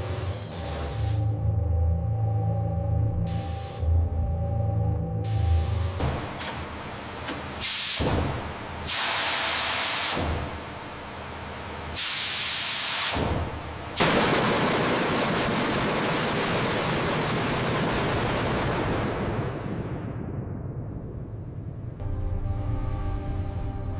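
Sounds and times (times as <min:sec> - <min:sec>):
loud air hissing: 0:03.3 - 0:03.9, 0:07.6 - 0:10.6, 0:11.9 - 0:13.5.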